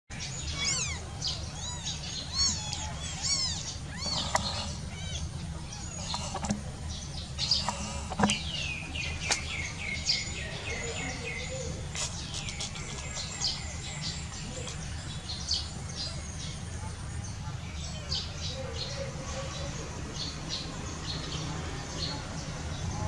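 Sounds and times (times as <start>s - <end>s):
birds chirping: 0.1s - 23.0s.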